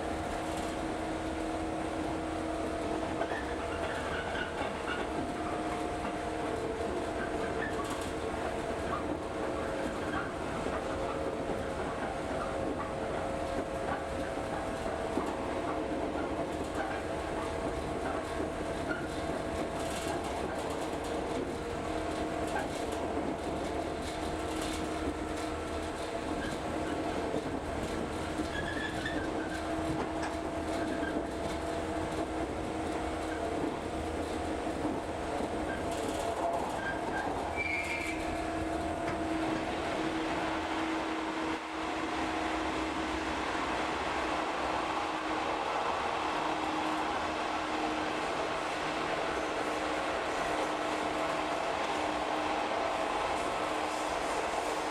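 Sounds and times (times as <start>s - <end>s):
train wheels rumbling on rails: 0.0s - 54.9s
faint high squeaks: 36.8s - 38.3s.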